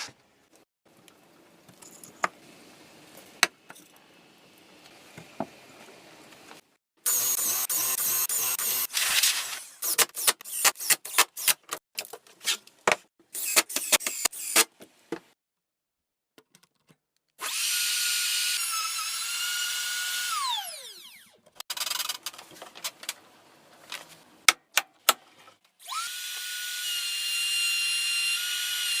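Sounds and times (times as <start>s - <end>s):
electric drill motor whining: 17.4s - 21.4s.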